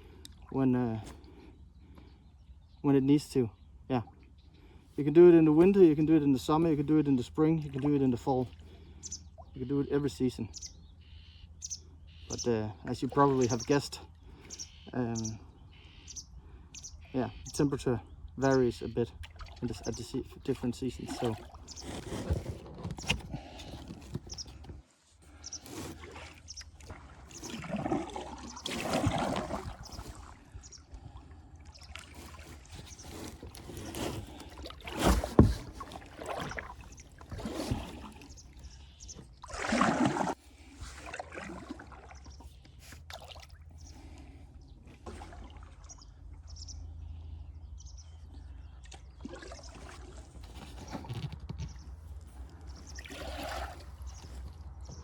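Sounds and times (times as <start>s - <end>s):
paddle strokes splashing water: 19.2s - 44.2s, 44.8s - 46.6s, 48.8s - 55.0s.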